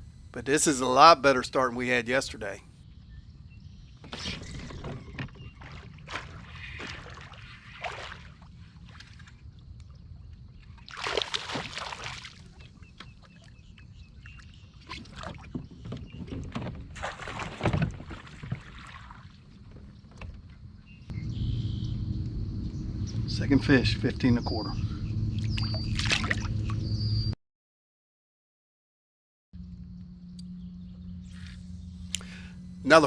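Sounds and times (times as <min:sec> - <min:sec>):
water splashing: 0:10.9 - 0:12.4, 0:25.4 - 0:26.8
low steady rumble: 0:21.1 - 0:27.3, 0:29.6 - 0:33.0.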